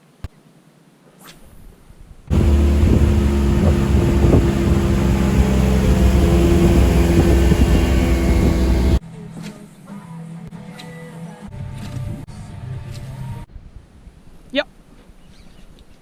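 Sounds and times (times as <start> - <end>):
outboard motor running: 2.3 - 9.0.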